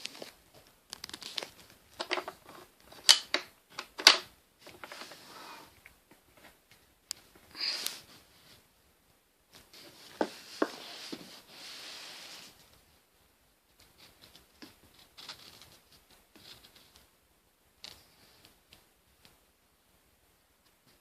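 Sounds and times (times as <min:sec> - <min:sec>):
scraping rustle: 0:04.6 - 0:06.6, 0:09.6 - 0:12.9, 0:13.7 - 0:17.1
light ticks and taps: 0:17.8 - 0:19.4.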